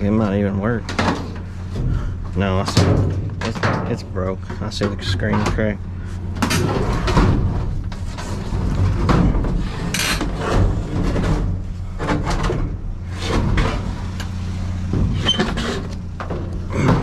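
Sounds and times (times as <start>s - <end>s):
clunks and knocks of junk handled: 0.0s - 17.0s
steady low hum: 0.0s - 17.0s.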